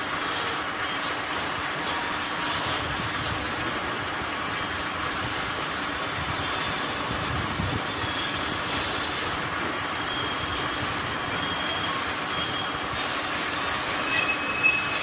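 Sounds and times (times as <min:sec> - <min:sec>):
train wheels rumbling on rails: 0:00.0 - 0:15.0
faint wheel squeals: 0:11.4 - 0:15.0.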